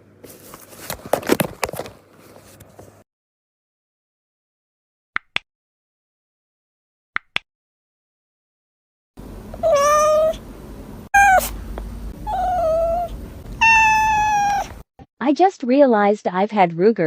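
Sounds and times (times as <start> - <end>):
cat meowing: 9.6 - 10.4, 11.2 - 11.6, 12.2 - 14.8.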